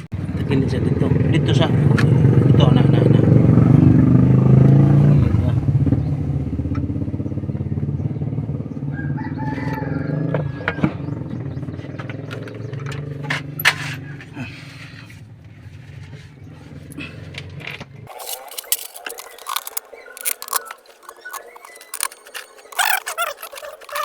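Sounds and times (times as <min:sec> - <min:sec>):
sharp engine clicks: 0:18.1 - 0:24.0.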